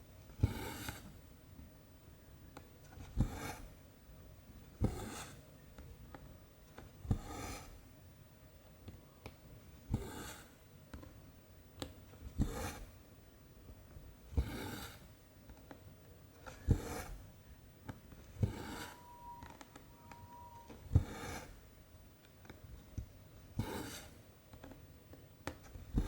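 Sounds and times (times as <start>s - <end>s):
faint thin whine: 18.2s - 21.8s
needle piercing fabric: 18.4s - 21.6s.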